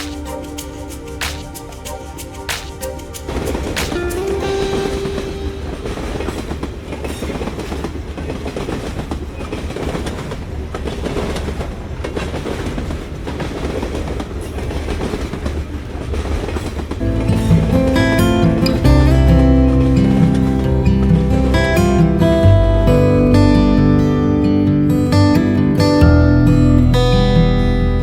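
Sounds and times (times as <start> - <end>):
music: 0.0 - 6.0, 17.0 - 28.0
train wheels clattering on rails: 2.5 - 20.7.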